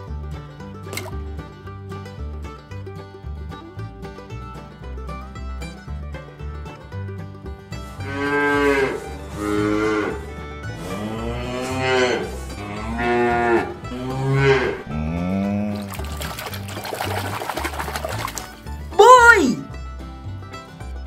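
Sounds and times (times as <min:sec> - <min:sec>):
cattle mooing: 0:08.0 - 0:16.0.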